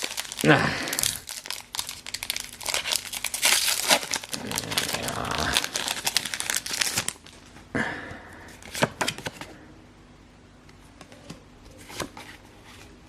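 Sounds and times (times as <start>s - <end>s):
foil wrapper crinkling: 0.0s - 7.5s.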